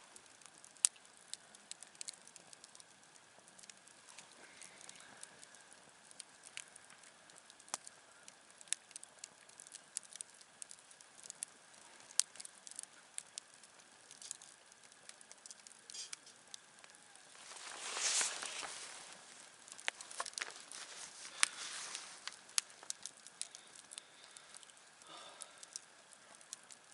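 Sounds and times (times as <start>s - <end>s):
campfire crackling and popping: 0.0s - 26.9s
faint steady hiss: 0.0s - 26.9s
hissing rush: 17.3s - 22.8s.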